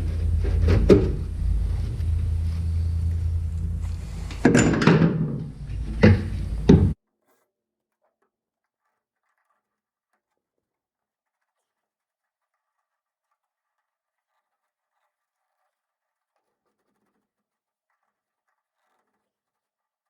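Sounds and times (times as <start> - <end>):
knocks and clunks: 0.0 - 7.0
steady low hum: 0.0 - 7.0.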